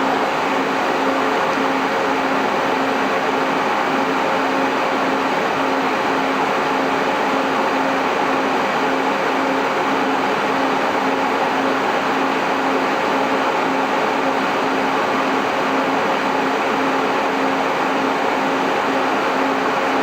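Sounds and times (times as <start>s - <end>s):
cooling fans rushing: 0.0s - 20.0s.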